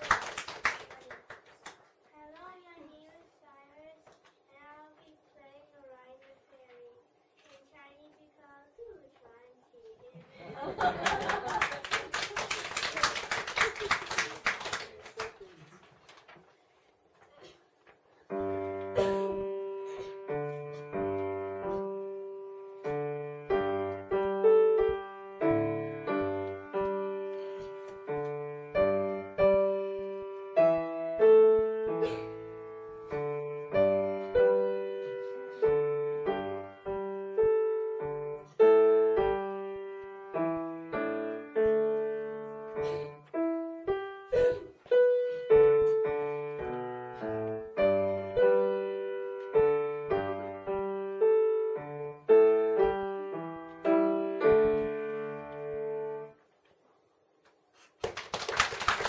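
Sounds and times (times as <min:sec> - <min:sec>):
solo piano melody: 0:18.3 - 0:56.4.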